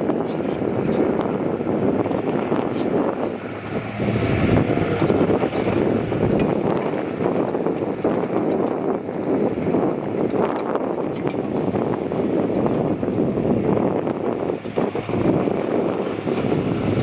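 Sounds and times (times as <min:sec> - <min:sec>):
diesel earthmoving machinery running: 0:00.0 - 0:17.0.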